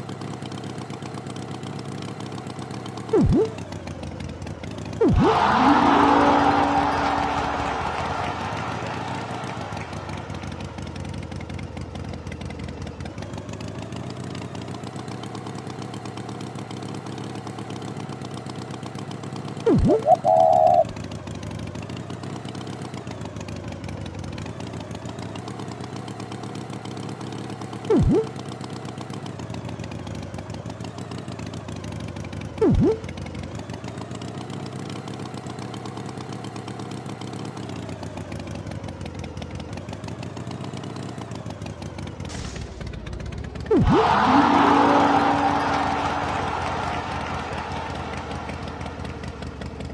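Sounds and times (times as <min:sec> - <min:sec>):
short loud falling-pitch sounds: 0:03.1 - 0:03.5, 0:05.0 - 0:10.4, 0:19.7 - 0:20.9, 0:27.9 - 0:28.3, 0:42.3 - 0:49.6.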